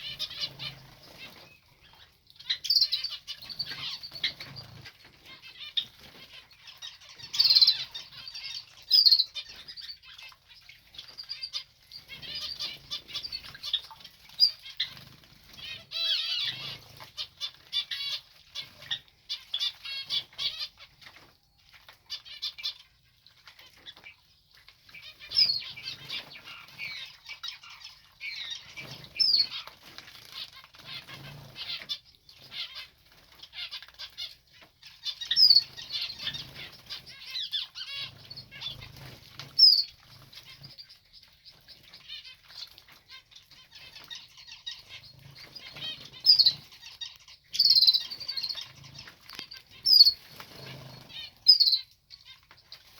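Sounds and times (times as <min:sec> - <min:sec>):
birds splashing and flapping: 0:00.0 - 0:52.9.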